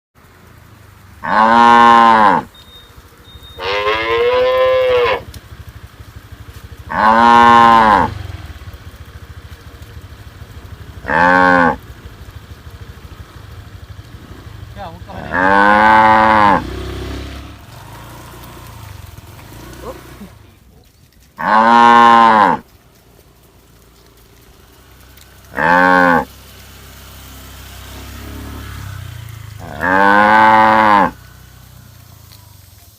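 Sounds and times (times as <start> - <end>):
cattle mooing: 1.2 - 2.6, 3.5 - 5.3, 6.8 - 8.4, 11.0 - 11.9, 15.1 - 16.8, 21.4 - 22.7, 25.5 - 26.3, 29.6 - 31.4.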